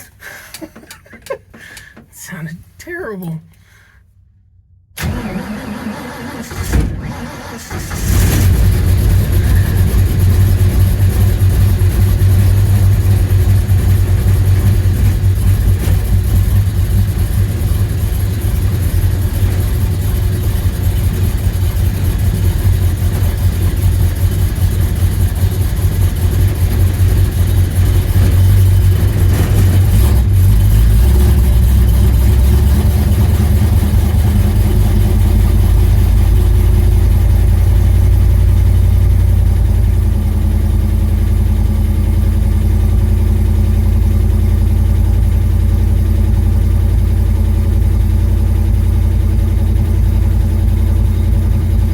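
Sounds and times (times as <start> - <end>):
engine idling low rumble: 8.0 - 51.9.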